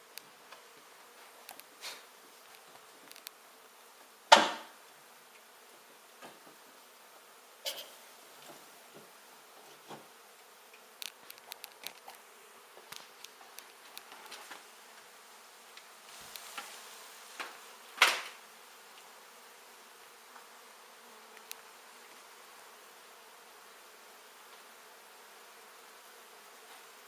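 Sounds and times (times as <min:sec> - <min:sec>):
bees buzzing: 0:00.0 - 0:27.0
crackling scrape: 0:01.2 - 0:03.4, 0:07.6 - 0:08.6, 0:10.7 - 0:14.7, 0:15.8 - 0:18.4.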